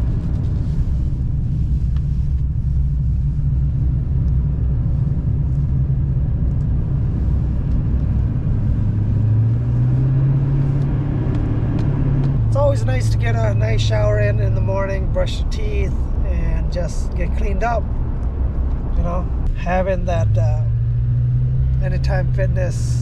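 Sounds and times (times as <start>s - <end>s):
truck engine and road rumble: 0.0s - 23.0s.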